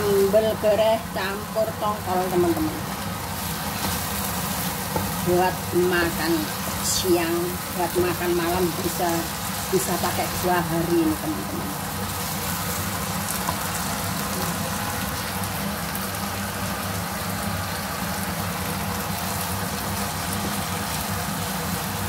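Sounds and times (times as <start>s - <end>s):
food sizzling in a wok: 0.0s - 22.0s
spatula stirring and scraping: 2.9s - 5.3s.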